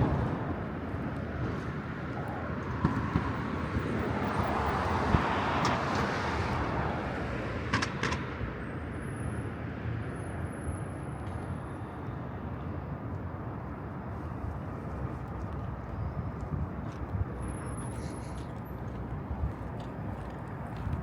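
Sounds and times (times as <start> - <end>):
vehicle passing on street: 0.0 - 9.0
urban background noise: 0.0 - 21.0.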